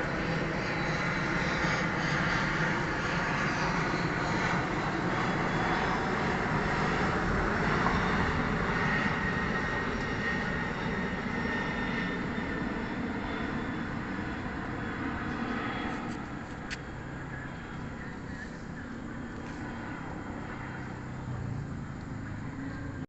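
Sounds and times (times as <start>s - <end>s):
jet airliner flying past: 0.0s - 23.0s.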